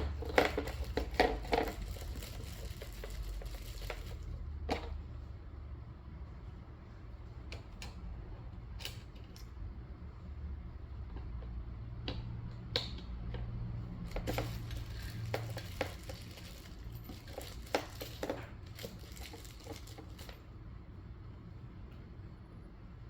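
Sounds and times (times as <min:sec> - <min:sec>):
cart parts clicking and knocking: 0:00.0 - 0:05.1, 0:11.1 - 0:20.4
low steady hum: 0:00.0 - 0:23.0.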